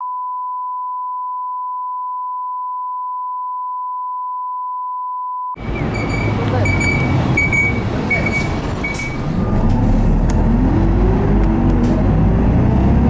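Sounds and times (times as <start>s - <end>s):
sine wave test tone: 0.0s - 5.6s.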